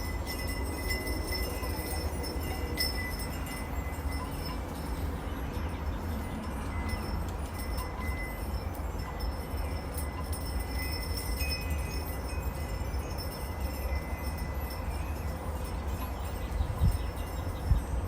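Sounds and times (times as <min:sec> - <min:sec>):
low rumble of breeze: 0:00.0 - 0:18.0
wind chimes ringing: 0:00.0 - 0:18.0.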